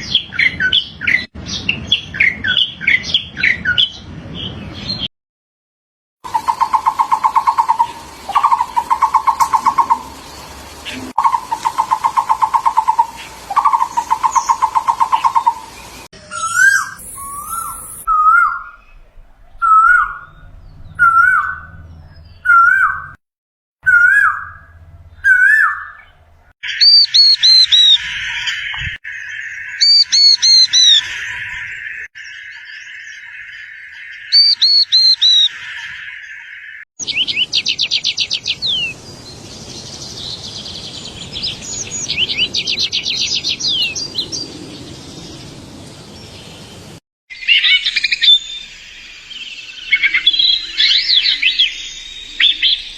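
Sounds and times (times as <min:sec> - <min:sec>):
steady hiss: 0:06.3 - 0:16.1
rapid bird trill: 0:06.3 - 0:18.9, 0:23.8 - 0:45.4, 0:47.3 - 0:52.9
loud ringing bird calls: 0:06.3 - 0:19.0, 0:19.6 - 0:23.2, 0:23.8 - 0:39.0, 0:47.3 - 0:52.9.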